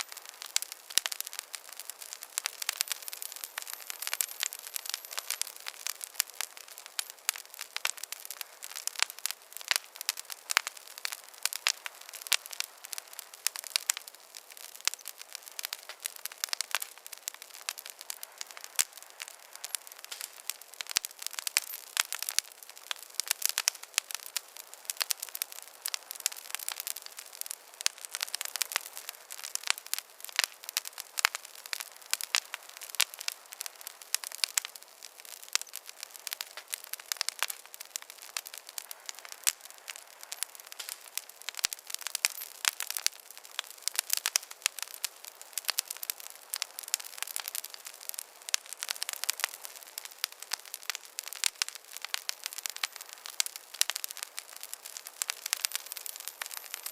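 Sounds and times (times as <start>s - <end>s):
campfire crackling: 0.0s - 56.9s.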